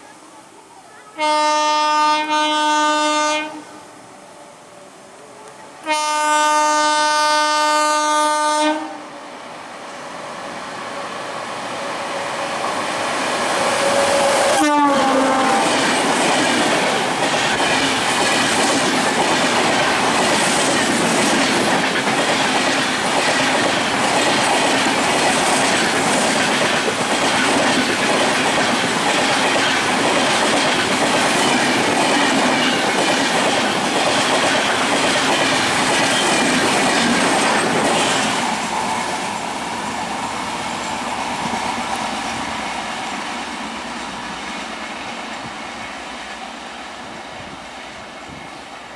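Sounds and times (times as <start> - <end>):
train passing at speed: 0.0 - 48.9
train horn blast: 1.2 - 3.8, 5.8 - 9.1, 13.6 - 15.8.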